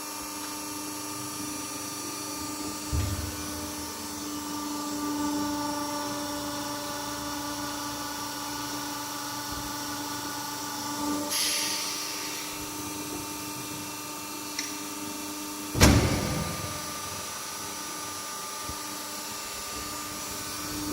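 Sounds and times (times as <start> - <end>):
burst of hiss: 11.3 - 13.8.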